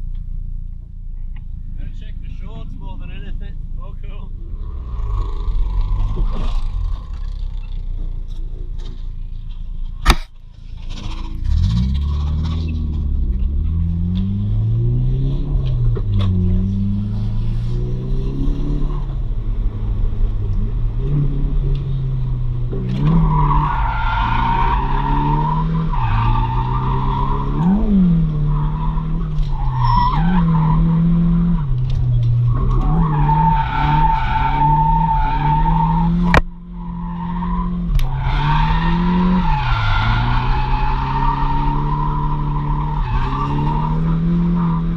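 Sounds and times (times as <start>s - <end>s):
car engine revving: 3.5s - 8.9s, 10.1s - 44.9s
sharp click: 10.0s - 10.4s.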